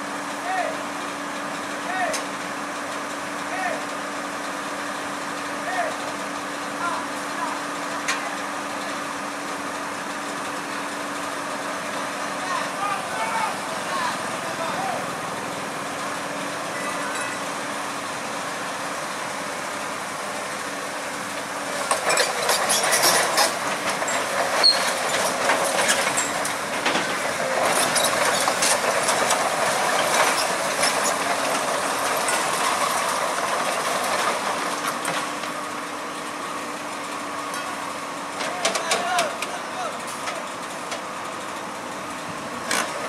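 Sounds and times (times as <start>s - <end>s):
heavy machinery running: 0.0s - 43.0s
metallic clanking and rattling: 21.8s - 32.9s.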